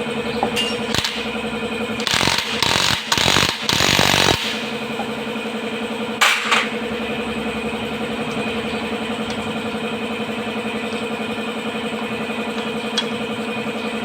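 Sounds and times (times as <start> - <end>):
engine idling: 0.0 - 14.0
sharp clicks: 0.9 - 1.4, 2.0 - 4.8.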